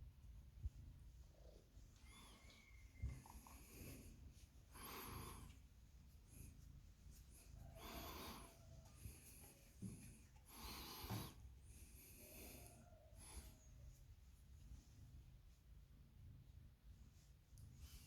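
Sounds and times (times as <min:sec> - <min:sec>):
cat purring: 0:00.1 - 0:18.0.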